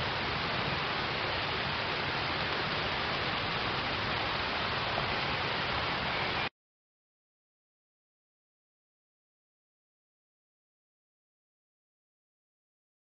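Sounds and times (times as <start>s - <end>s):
rain falling on pond water: 0.0s - 6.5s.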